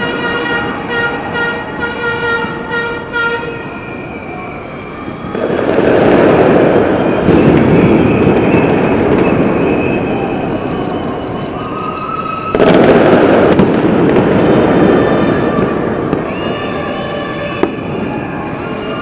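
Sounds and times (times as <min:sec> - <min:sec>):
horn steady note: 0:00.0 - 0:03.7
street noise: 0:00.0 - 0:19.0
crowd cheering and shouting: 0:14.2 - 0:19.0.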